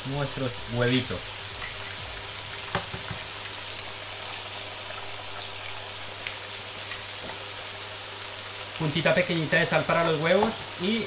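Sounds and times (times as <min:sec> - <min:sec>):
oil sizzling in a wok: 0:00.0 - 0:11.0
eggshell tapping against pan: 0:02.7 - 0:03.3.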